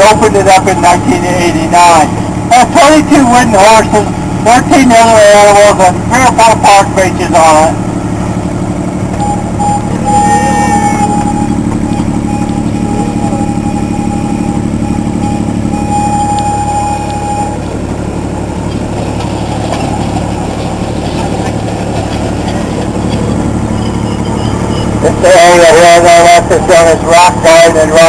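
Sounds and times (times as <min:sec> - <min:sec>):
thin high squeal: 0:09.7 - 0:11.6.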